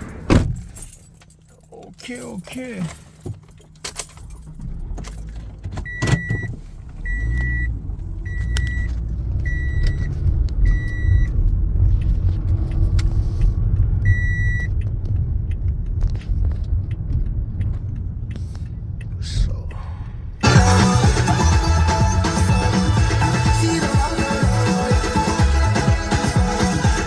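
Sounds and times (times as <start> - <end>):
car engine running: 3.0 - 27.0
car warning chime beeping: 5.8 - 11.4, 14.0 - 14.8.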